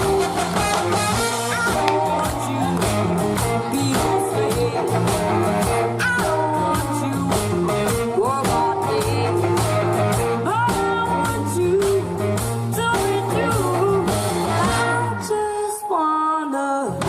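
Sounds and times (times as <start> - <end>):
funk-blues band playing: 0.0 - 15.8
girl singing: 5.9 - 9.8, 10.4 - 17.0.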